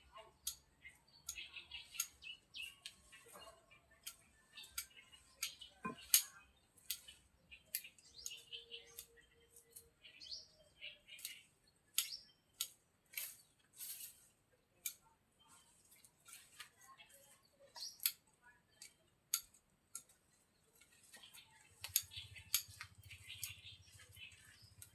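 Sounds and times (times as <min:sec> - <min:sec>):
small birds chirping: 0:00.0 - 0:24.9.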